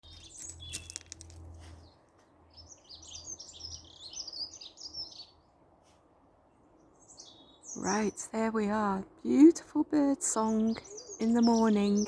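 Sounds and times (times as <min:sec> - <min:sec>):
songbird warbling: 0:10.2 - 0:12.0.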